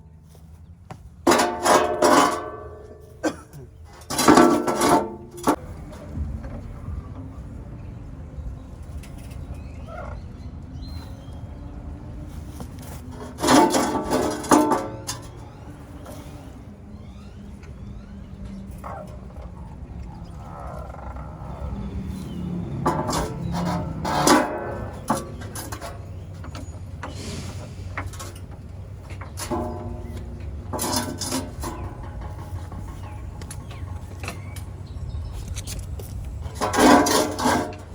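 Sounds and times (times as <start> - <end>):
tools and parts knocking: 1.2 - 5.6, 13.2 - 15.3, 22.7 - 26.7, 29.1 - 34.6, 35.6 - 37.9
scraping rubbing clatter: 1.2 - 6.0, 12.3 - 17.3, 18.7 - 37.9.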